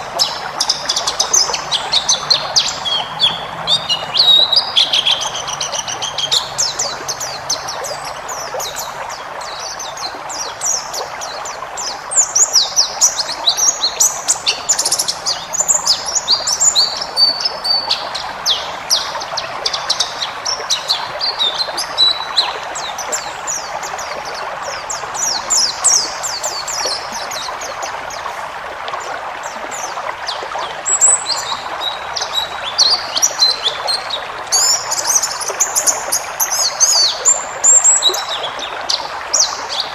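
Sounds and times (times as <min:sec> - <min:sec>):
bird twittering song: 0:00.0 - 0:28.4, 0:29.4 - 0:39.9.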